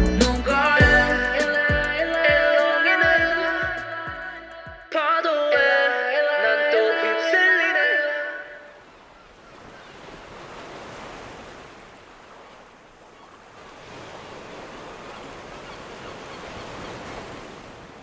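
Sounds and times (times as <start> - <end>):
ocean waves washing ashore: 6.4 - 18.0.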